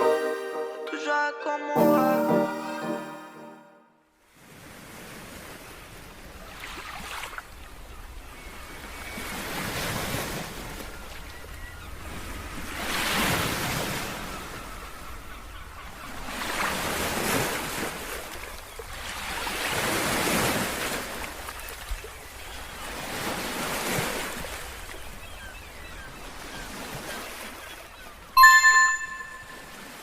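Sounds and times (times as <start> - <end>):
short bright chime: 0.0 - 3.9, 28.4 - 29.8.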